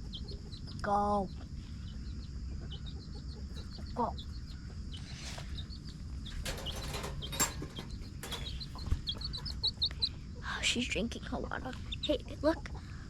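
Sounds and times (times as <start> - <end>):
low outdoor rumble: 0.0 - 13.0
small birds chirping: 0.0 - 13.0
rustling: 6.3 - 9.9.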